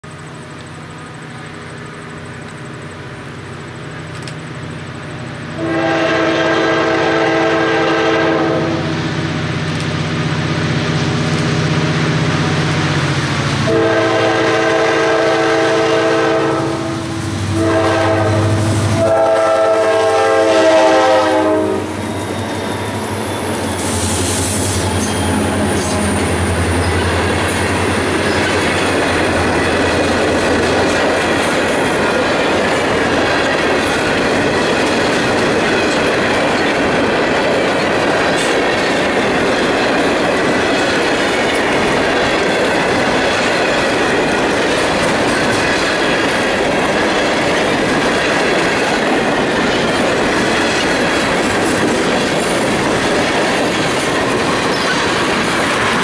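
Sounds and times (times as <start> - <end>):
diesel locomotive engine rumble: 0.0 - 56.0
chord horn blasts: 5.6 - 8.9, 13.6 - 22.0.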